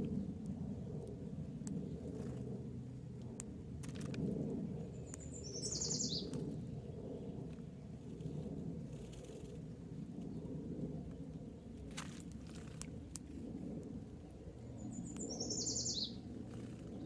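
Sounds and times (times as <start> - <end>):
bird chirping call: 5.2 - 6.3, 14.8 - 16.2.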